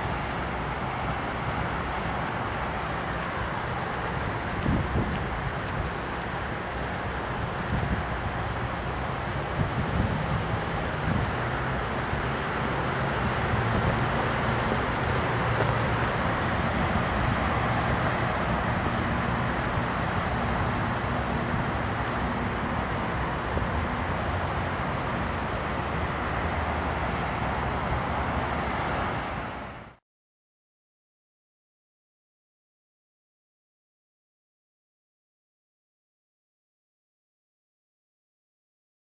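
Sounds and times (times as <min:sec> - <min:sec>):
freight train cars rumbling: 0:00.0 - 0:30.0.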